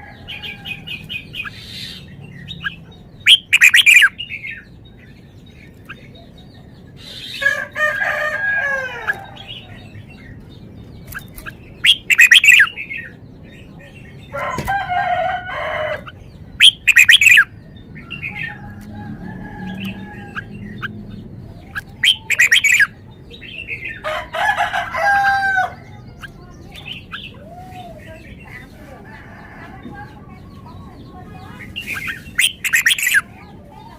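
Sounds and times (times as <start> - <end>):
bird singing whistled phrases: 3.3 - 4.4, 11.8 - 12.8, 16.6 - 17.5, 21.7 - 23.0.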